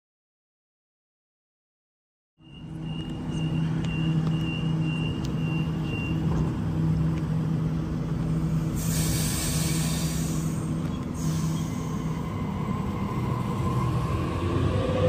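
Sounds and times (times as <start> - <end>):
electric train humming: 2.4 - 15.0
loud rushing hiss: 8.7 - 12.3.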